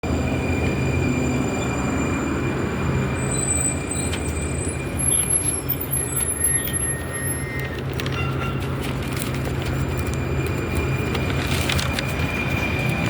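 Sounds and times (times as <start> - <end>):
train rumbling: 0.0 - 13.0
high wheel squeal: 0.2 - 9.0.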